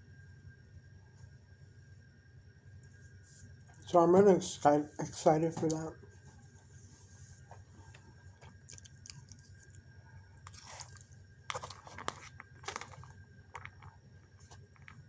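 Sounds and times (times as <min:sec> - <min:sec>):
person chewing and crunching food: 0:07.4 - 0:15.0.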